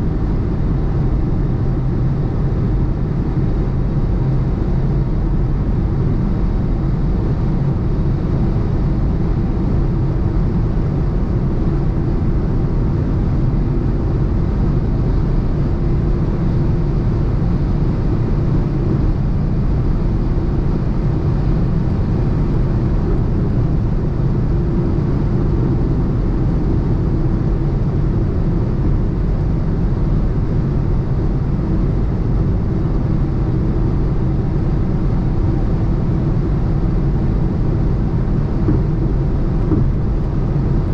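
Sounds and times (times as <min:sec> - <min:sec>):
car engine at steady speed: 0:00.0 - 0:40.9
road and wind noise: 0:00.0 - 0:40.9.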